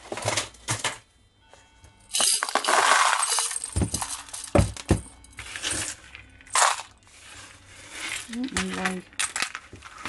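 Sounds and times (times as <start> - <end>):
beads rattling and clinking: 2.1 - 10.0.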